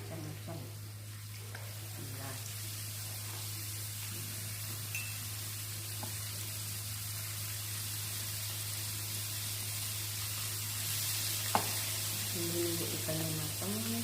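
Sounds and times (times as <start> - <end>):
fish frying in hot oil: 0.0 - 14.0.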